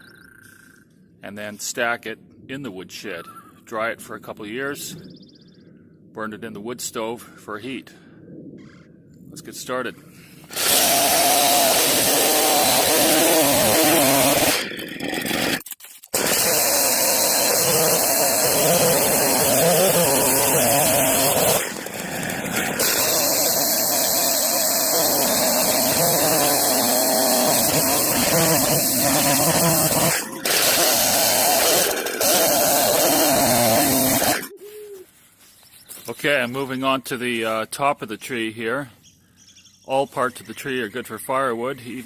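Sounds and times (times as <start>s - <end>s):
chainsaw cutting wood: 10.5s - 34.5s.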